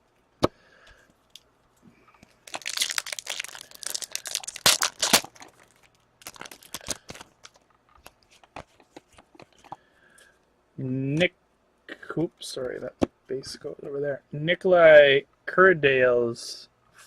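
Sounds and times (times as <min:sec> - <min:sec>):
foil wrapper crinkling and tearing: 0:02.4 - 0:08.2.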